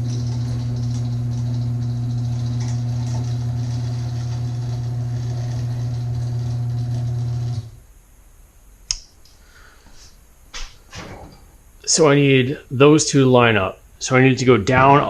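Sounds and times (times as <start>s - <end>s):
garage door opener humming: 0.0s - 7.8s
sharp click: 8.9s - 9.4s.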